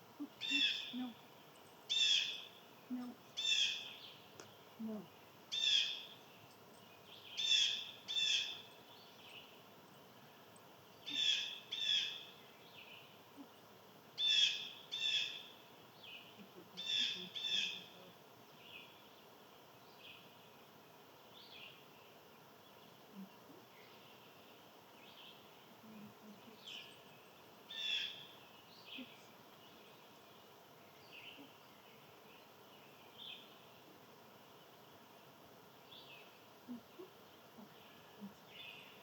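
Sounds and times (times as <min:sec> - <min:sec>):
bird harsh raspy calls: 0:00.3 - 0:01.0.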